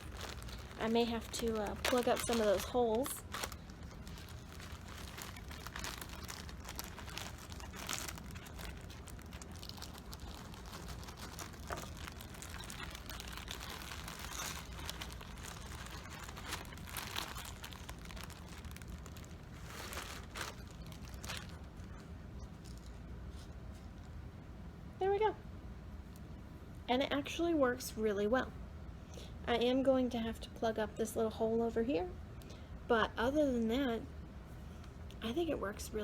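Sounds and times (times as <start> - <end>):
bird seed pouring from plastic bag: 0.0 - 21.7.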